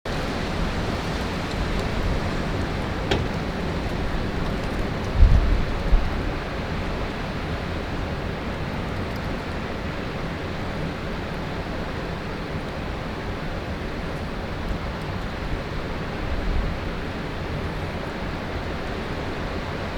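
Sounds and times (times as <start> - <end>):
wind blowing over microphone: 0.1 - 7.7
low buffeting thump: 2.5 - 4.1.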